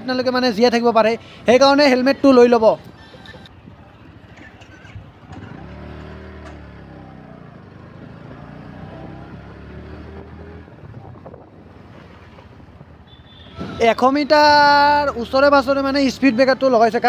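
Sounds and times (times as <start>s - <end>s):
motorcycle engine drone: 4.4s - 12.9s.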